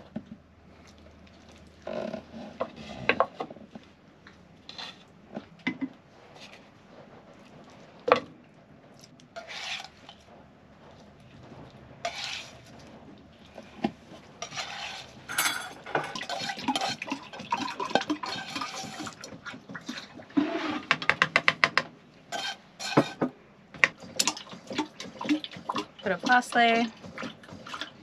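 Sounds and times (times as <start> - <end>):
utensil scraping and clinking pot: 9.4 - 10.3, 12.0 - 21.2, 22.3 - 23.3, 24.1 - 28.0.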